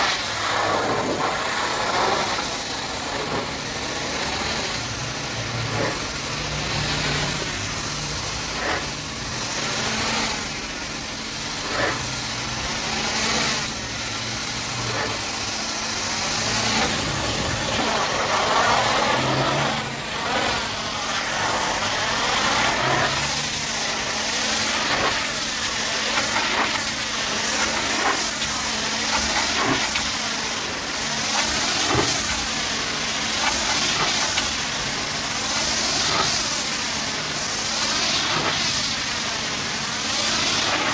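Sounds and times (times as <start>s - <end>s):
pressure washer spray hissing: 0.0s - 40.9s
motor humming: 12.7s - 25.2s.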